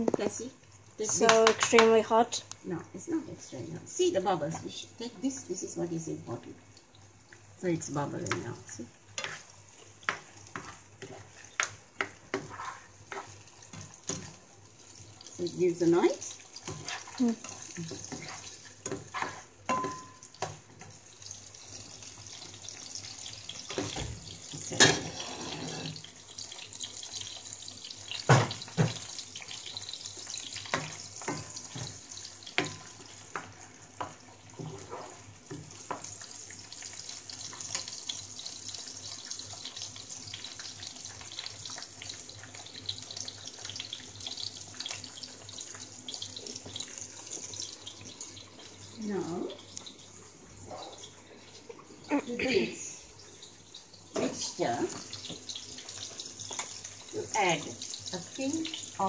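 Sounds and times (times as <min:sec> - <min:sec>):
onions sizzling in hot oil: 0:00.0 - 0:59.0
spoon knocking on pan: 0:18.9 - 0:20.6.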